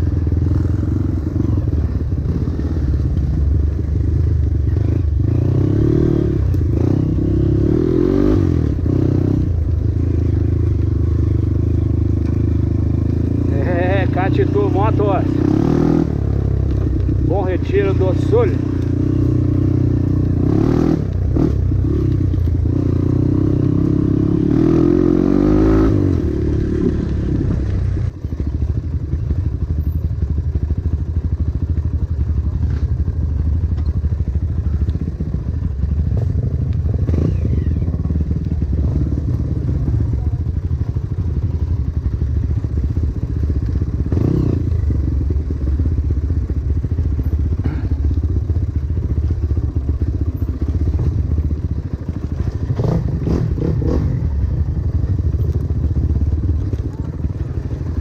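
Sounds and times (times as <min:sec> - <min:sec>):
dirt bike engine revving: 0:04.0 - 0:27.6, 0:52.1 - 0:55.2.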